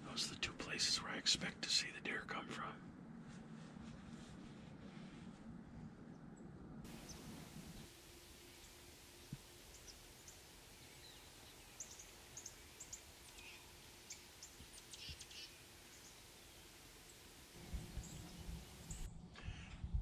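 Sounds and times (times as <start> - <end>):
small birds chirping: 6.9 - 19.1.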